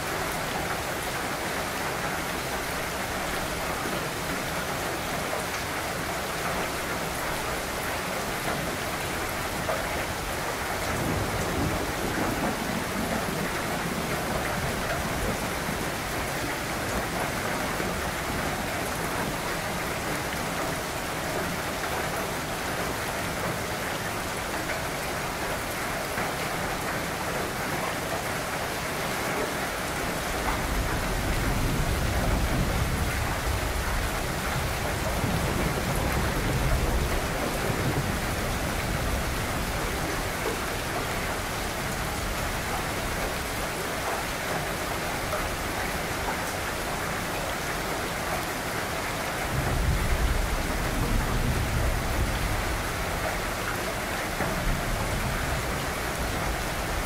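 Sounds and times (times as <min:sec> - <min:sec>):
rain on leafy trees: 0:00.0 - 0:57.0.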